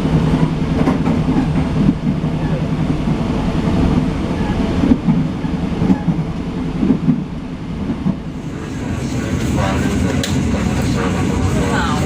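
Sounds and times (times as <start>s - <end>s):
train rumbling along track: 0.0s - 12.0s
train wheels clacking on rail joints: 0.4s - 2.6s, 9.0s - 12.0s.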